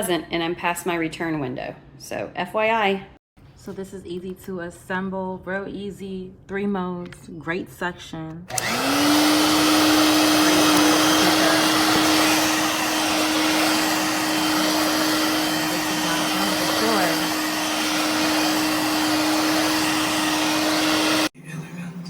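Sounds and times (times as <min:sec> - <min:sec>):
stick vacuum running: 0:08.5 - 0:21.3.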